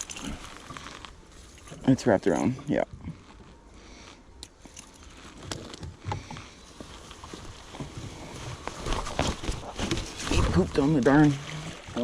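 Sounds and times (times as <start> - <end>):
knocks and rustles of handling: 4.6 - 10.8.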